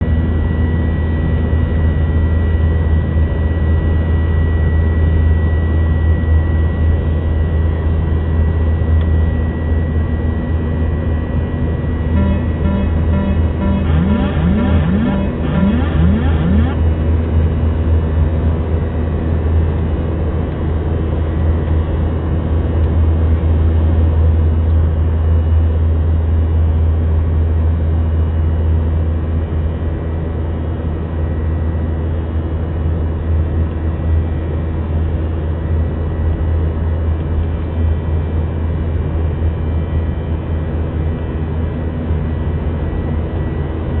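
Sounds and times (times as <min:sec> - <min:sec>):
jet engines droning: 0:00.0 - 0:26.7.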